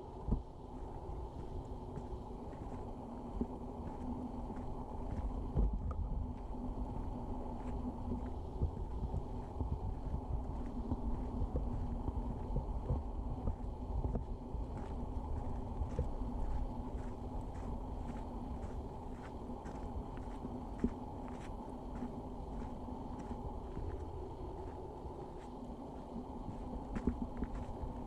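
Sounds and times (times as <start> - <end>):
wind on microphone: 4.4 - 19.0.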